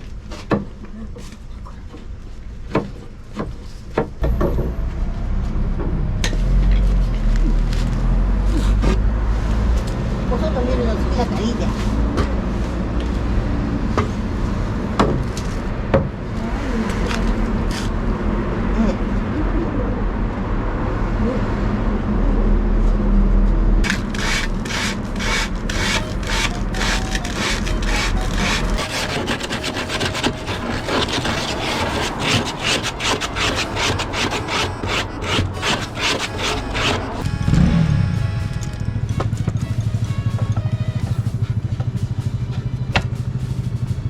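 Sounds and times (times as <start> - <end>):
saw cutting through wood: 23.8 - 42.3.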